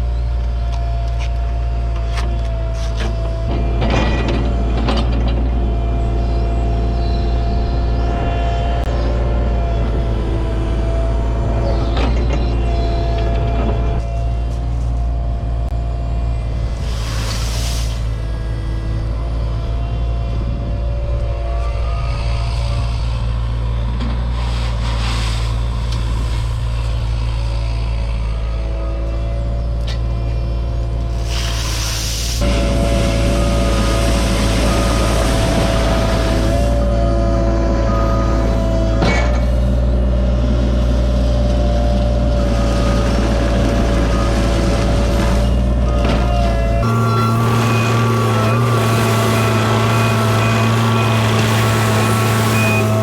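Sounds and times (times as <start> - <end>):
diesel engine running: 0.0 - 53.0
hiss: 16.8 - 18.1, 31.2 - 32.4.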